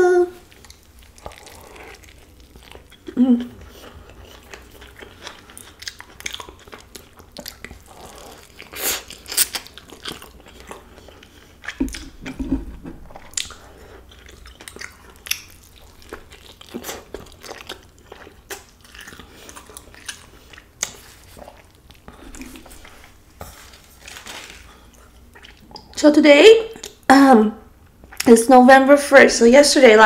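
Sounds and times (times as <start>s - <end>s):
person biting and chewing: 0.4s - 26.0s
mouth clicks and smacks: 11.6s - 13.6s.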